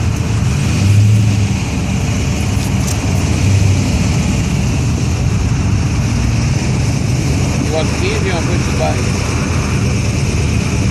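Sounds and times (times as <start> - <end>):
car engine rumbling: 0.0 - 10.9.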